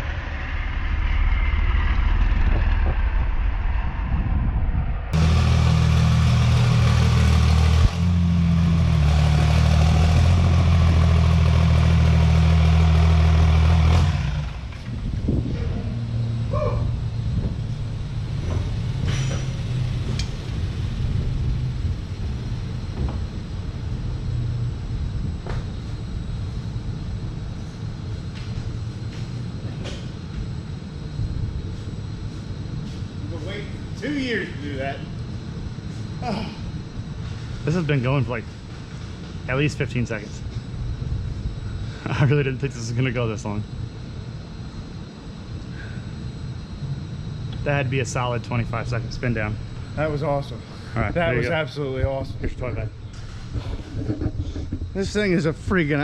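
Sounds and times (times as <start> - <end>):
dyno rollers spinning down: 0.0 - 24.8
truck diesel engine running hard: 5.1 - 25.1.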